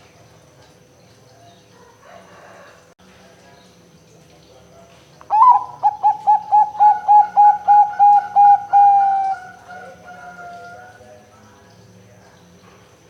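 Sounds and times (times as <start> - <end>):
dove cooing: 5.3 - 11.0.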